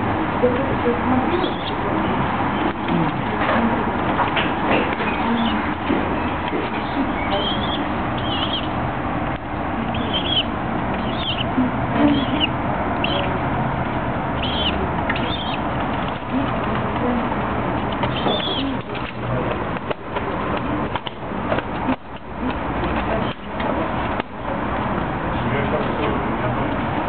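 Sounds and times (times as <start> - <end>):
high-pitched bird calls: 1.3 - 2.9, 5.0 - 8.8, 9.7 - 13.4, 14.3 - 15.8, 18.0 - 18.9.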